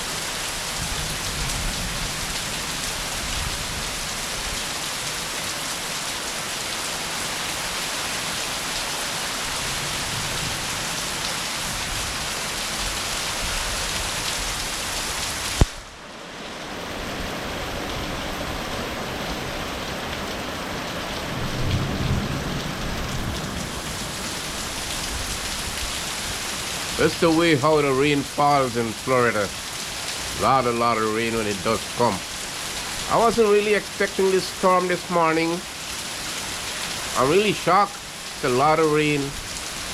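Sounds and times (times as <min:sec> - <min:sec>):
heavy rain pouring: 0:00.0 - 0:39.9
low rumble of thunder: 0:21.4 - 0:23.8.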